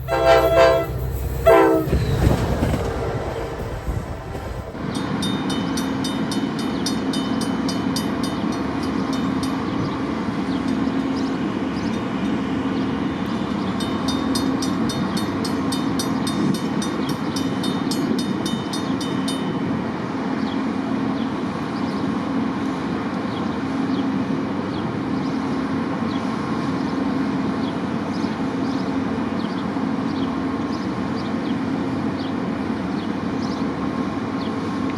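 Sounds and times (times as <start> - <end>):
locomotive horn blasts: 0.0 - 2.0
freight train rumble: 0.0 - 34.9.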